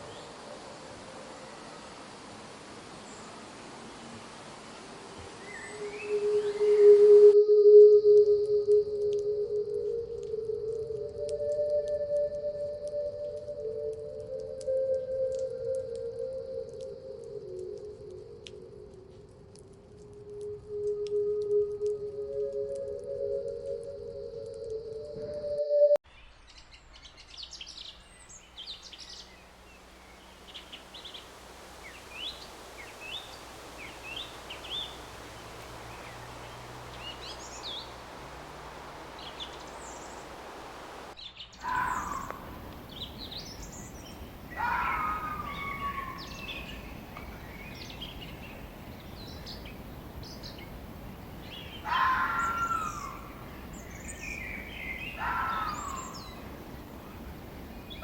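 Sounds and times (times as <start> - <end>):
wild birds chirping: 0.0 - 7.0, 26.1 - 58.0
forest ambience hiss: 0.0 - 24.8, 26.1 - 58.0
bird calls sweeping downward: 5.4 - 17.6, 30.1 - 50.8, 51.4 - 58.0.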